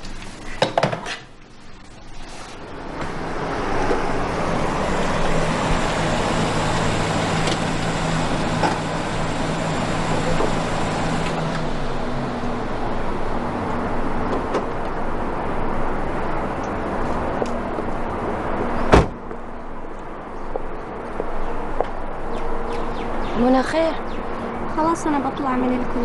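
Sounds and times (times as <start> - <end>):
car engine running: 2.8 - 18.7.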